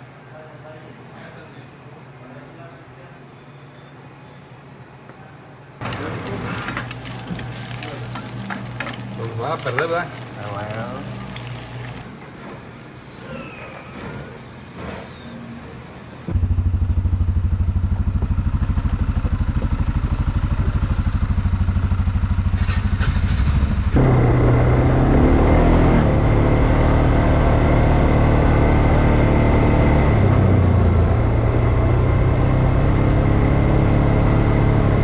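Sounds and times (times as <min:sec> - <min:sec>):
atv engine running: 0:05.8 - 0:12.2, 0:16.3 - 0:35.0.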